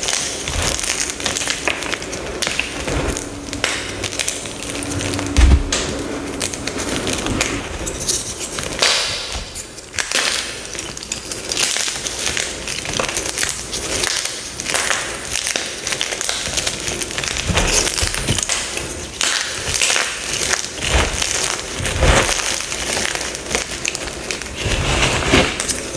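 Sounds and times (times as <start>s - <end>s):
low thud: 5.3s - 6.0s.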